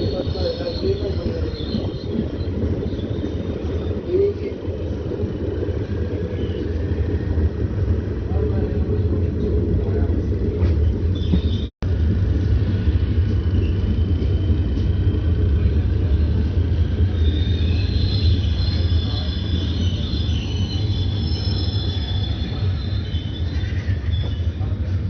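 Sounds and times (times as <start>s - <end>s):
metallic wheel squeal: 0.0s - 7.3s, 12.8s - 25.0s
train heavy rumble: 0.0s - 25.0s.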